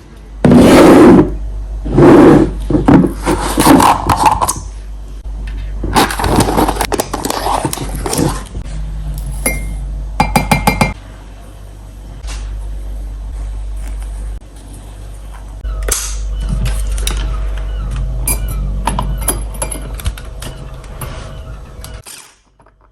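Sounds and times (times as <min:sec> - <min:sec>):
dishes and utensils clinking: 0:09.3 - 0:11.0, 0:18.2 - 0:20.1.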